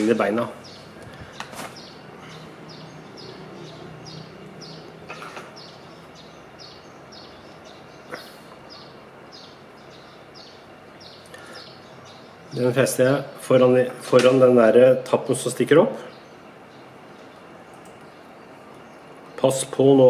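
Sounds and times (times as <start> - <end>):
bird chirping: 0.0 - 14.0, 15.4 - 20.0
faint clicks: 17.7 - 18.1.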